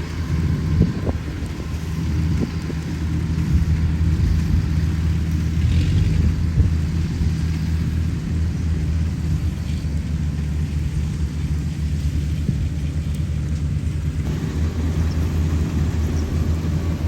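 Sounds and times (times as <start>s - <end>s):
combine harvester engine drone: 0.0s - 17.0s.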